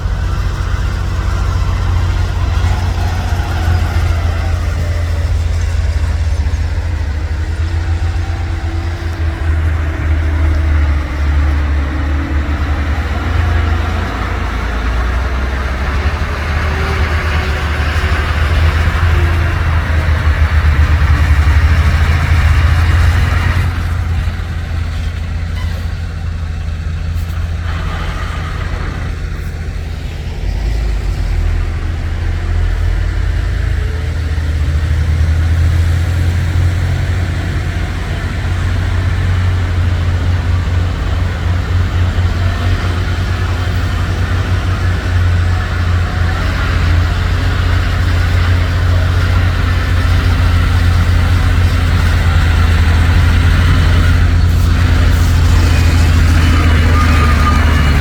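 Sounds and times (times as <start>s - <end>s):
truck diesel engine running: 0.0s - 58.0s.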